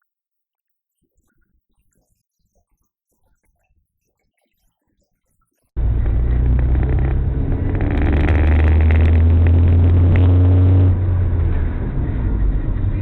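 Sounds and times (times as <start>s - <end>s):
clicks and rattles: 5.8s - 10.8s
car engine and road noise: 5.8s - 13.0s.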